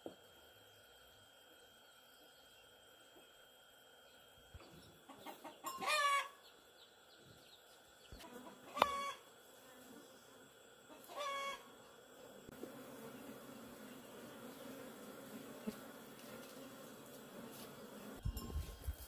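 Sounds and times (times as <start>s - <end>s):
chicken clucking softly: 5.0s - 6.3s
chicken calling: 5.1s - 6.4s, 8.3s - 9.2s, 10.9s - 11.8s.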